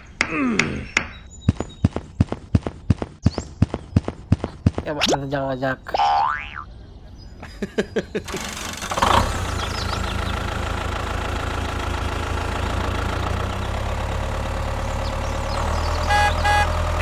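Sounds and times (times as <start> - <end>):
engine running with whine: 8.3 - 17.0.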